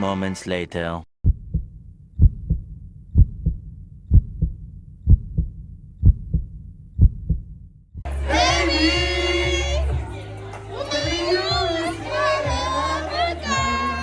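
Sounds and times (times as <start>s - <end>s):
heartbeat thumping: 1.2s - 8.1s.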